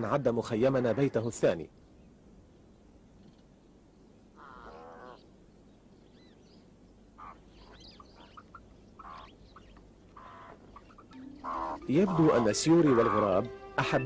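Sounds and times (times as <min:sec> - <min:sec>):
harsh drawn-out bird call: 0:07.2 - 0:13.5.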